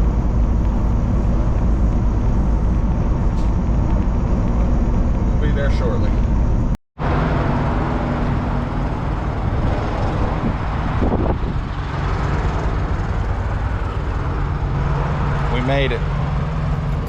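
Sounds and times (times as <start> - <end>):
truck diesel engine drone: 0.0 - 17.0
wind buffeting microphone: 7.6 - 17.0.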